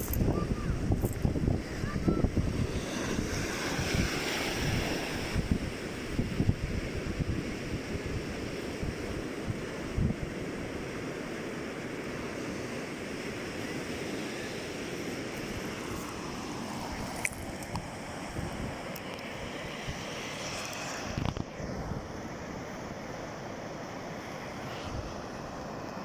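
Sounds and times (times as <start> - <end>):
wind buffeting microphone: 0.0 - 10.6
sea waves washing on shore: 0.0 - 26.0.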